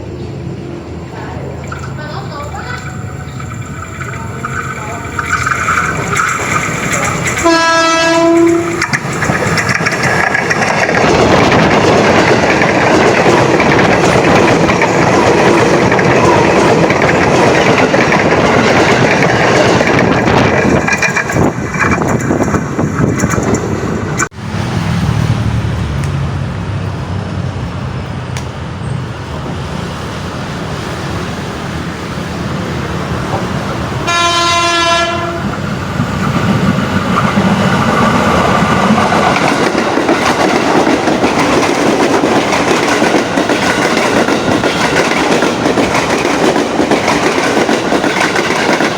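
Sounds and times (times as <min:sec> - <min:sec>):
train wheels rumbling on rails: 0:00.0 - 0:48.9
train horn blast: 0:07.4 - 0:08.9, 0:34.0 - 0:35.6.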